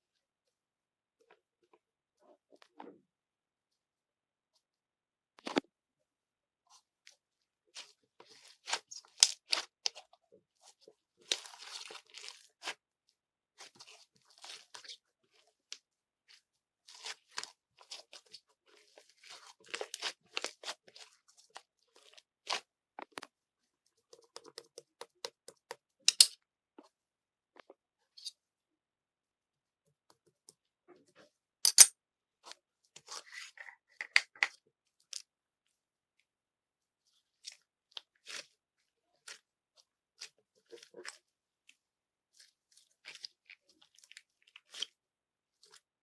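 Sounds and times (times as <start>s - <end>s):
handling crackles and tearing: 16.9s - 23.3s.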